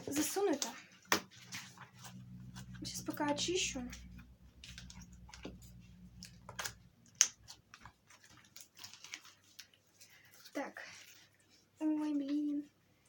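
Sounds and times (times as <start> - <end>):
faint low hum: 0.0 - 13.0
sticky slime clicks and crackles: 6.2 - 7.9.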